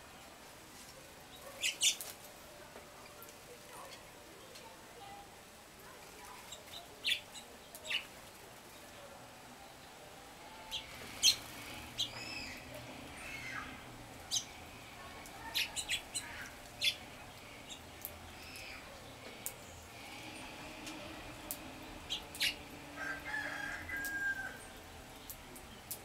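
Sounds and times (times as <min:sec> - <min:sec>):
songbirds chip notes: 0:09.6 - 0:23.1.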